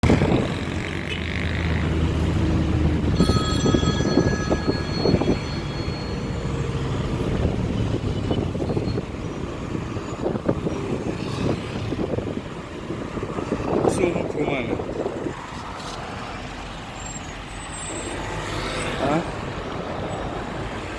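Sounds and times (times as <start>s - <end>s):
vehicle engines passing: 0.0s - 20.9s
high steady tone: 3.1s - 7.5s.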